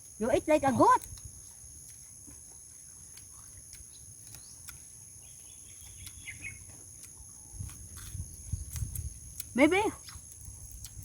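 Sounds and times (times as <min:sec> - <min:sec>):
faint bird chirps: 0:03.9 - 0:06.7.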